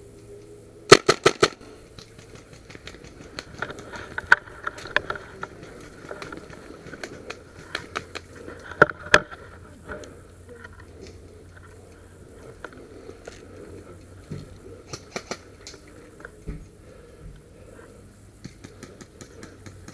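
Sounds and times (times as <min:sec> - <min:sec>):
airsoft gun pops and clicks: 0:00.9 - 0:01.6
loud gunshots: 0:00.9 - 0:01.7.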